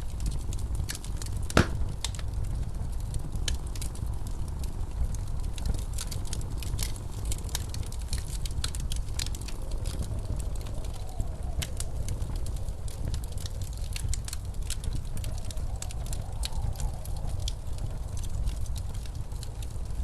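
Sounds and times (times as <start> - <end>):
blizzard wind rumbling: 0.0 - 20.0
wood fire crackling and popping: 0.0 - 20.0.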